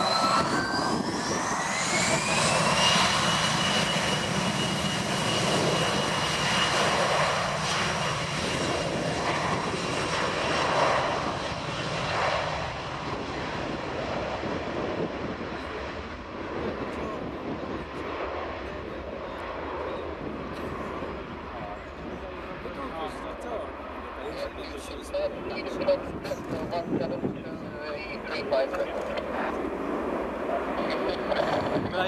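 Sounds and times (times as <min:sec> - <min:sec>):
jet noise rushing: 0:00.0 - 0:15.4
jet engine whine: 0:00.0 - 0:32.0.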